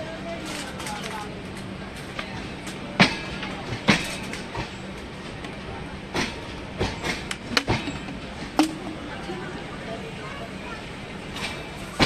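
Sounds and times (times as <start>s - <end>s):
train rumble and hum: 0.0s - 12.0s
sharp clanks from train wheels: 0.7s - 9.3s, 11.2s - 12.0s.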